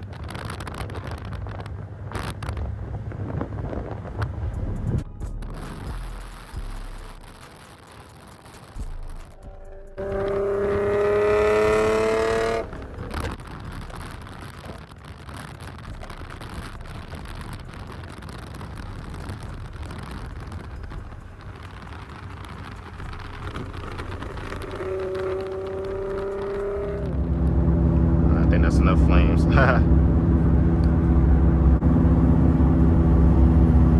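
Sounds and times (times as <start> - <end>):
car exhaust accelerating: 0.0 - 33.9
engine and road rumble: 0.0 - 33.9.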